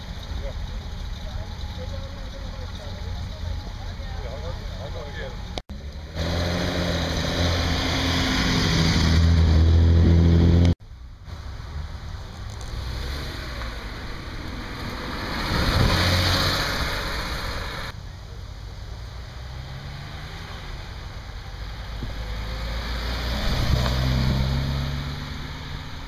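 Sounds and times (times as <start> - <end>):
car engine revving: 0.2 - 10.8, 12.6 - 18.0, 19.0 - 26.0
sports car accelerating away: 21.6 - 26.0.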